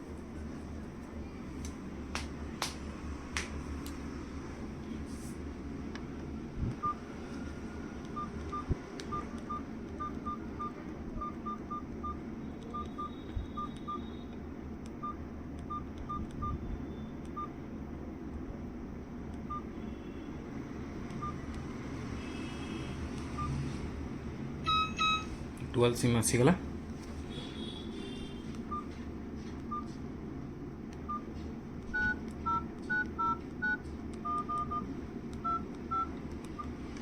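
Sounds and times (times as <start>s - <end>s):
phone keypad beeps: 6.8s - 7.0s, 8.2s - 14.3s, 15.0s - 17.5s, 19.5s - 19.7s, 21.1s - 21.4s, 24.6s - 25.3s, 28.7s - 28.9s, 29.7s - 30.0s, 31.0s - 31.3s, 31.9s - 36.7s.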